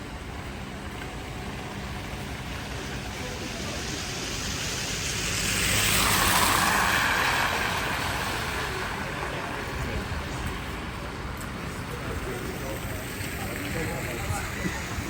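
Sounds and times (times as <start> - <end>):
vehicle driving past: 2.0 - 10.7.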